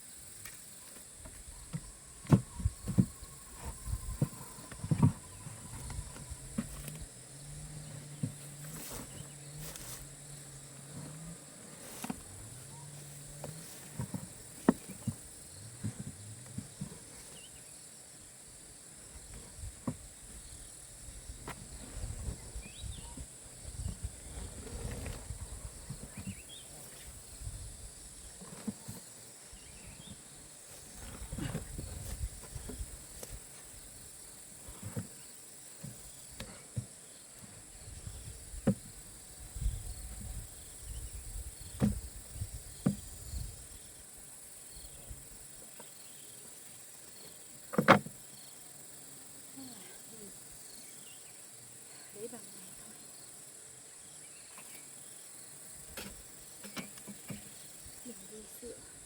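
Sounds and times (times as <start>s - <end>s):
insects droning: 0.0s - 59.0s
rustling: 7.9s - 10.2s, 10.8s - 17.4s.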